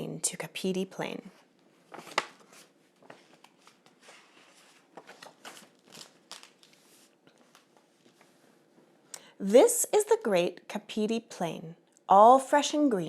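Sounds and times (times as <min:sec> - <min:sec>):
book pages rustling: 0:01.4 - 0:08.9.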